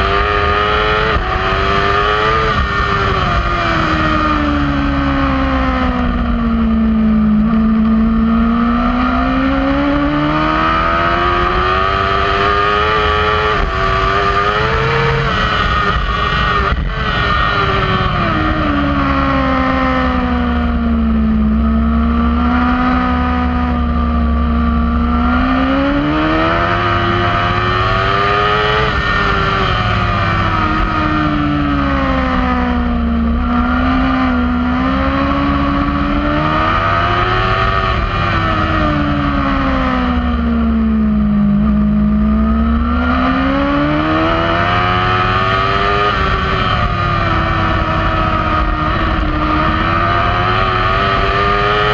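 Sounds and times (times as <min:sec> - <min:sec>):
racing motorcycle engine revving: 0:00.0 - 0:51.9.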